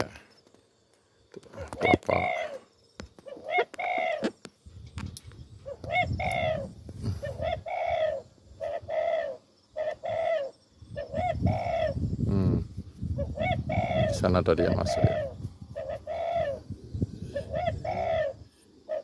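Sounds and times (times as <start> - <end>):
dove cooing: 1.4 - 4.4, 5.5 - 19.0
wind buffeting microphone: 4.6 - 9.0, 10.7 - 18.5.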